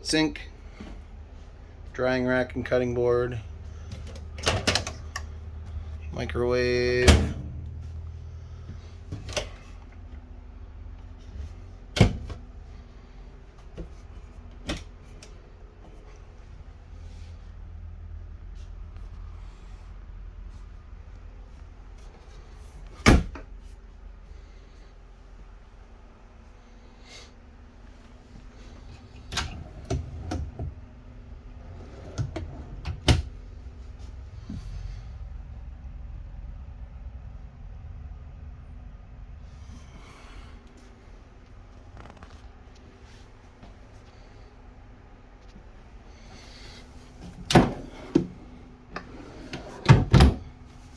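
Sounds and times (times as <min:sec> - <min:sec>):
low steady hum: 0:00.0 - 0:50.9
cabinet doors opening and shutting: 0:03.8 - 0:05.3, 0:07.0 - 0:07.7, 0:11.9 - 0:12.4, 0:22.9 - 0:23.5, 0:29.0 - 0:30.8, 0:31.6 - 0:33.4, 0:47.2 - 0:50.6.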